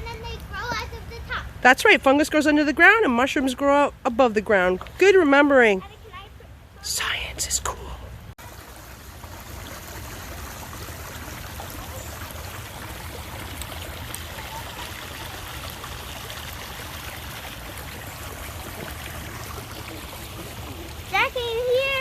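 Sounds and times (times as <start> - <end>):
creek water rushing: 8.4 - 22.0.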